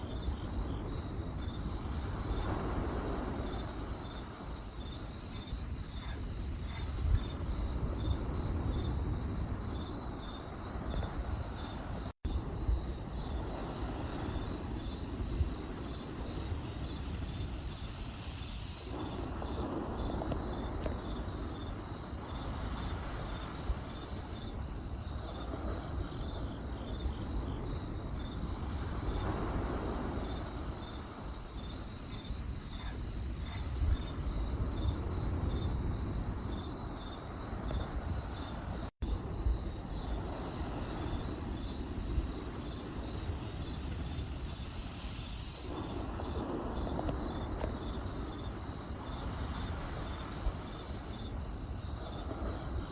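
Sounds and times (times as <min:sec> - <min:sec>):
campfire crackling: 0:00.0 - 0:52.9
crickets chirping: 0:00.0 - 0:52.9.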